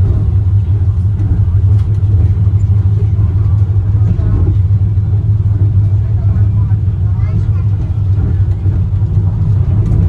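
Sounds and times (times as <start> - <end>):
suspension railway car rumbling: 0.0 - 10.0.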